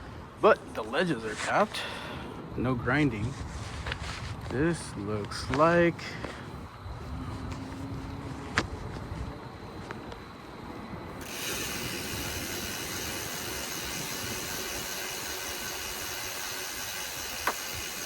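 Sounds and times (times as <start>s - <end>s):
bike freewheel ratcheting: 11.2s - 18.0s.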